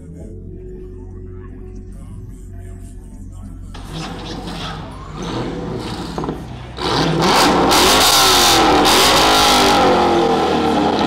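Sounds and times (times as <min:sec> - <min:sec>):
car engine revving: 0:03.8 - 0:11.0.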